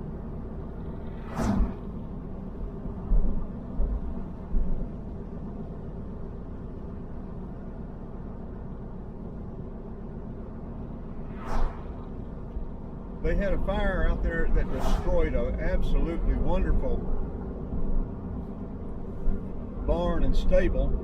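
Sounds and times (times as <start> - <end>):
car road and engine rumble: 0.0 - 21.0
hissing sweep: 11.2 - 12.1, 14.6 - 15.1.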